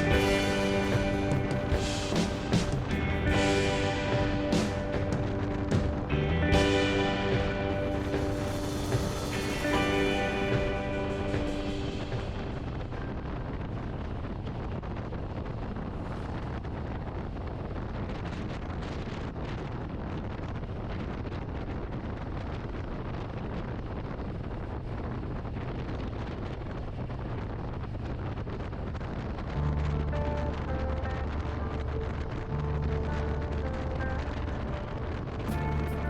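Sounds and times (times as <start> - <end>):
motorcycle engine cruising: 0.0 - 17.6
wind rushing over microphone: 0.0 - 36.0.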